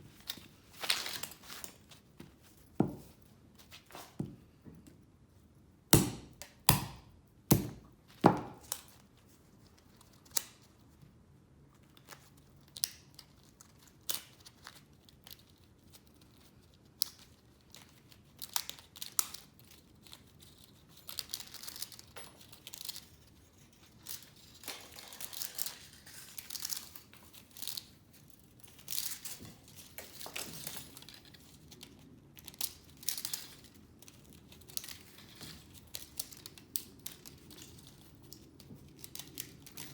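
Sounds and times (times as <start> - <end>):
scraping tearing and crinkling: 11.8 - 39.9.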